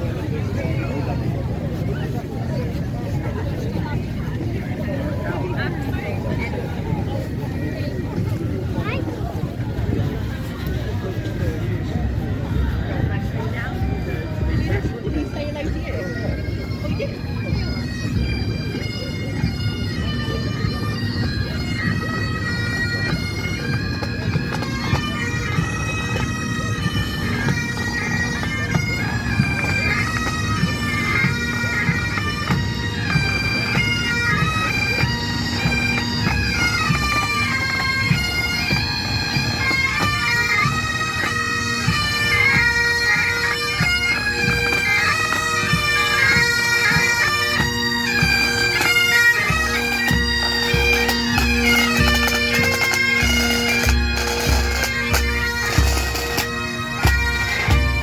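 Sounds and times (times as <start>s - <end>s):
bagpipe drone: 0.0s - 58.0s
bagpipes melody: 0.0s - 58.0s.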